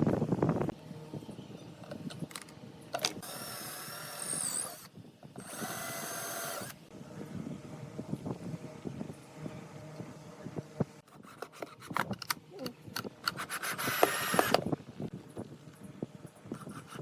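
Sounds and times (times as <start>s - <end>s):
power drill whining: 3.2s - 6.8s, 13.6s - 14.6s.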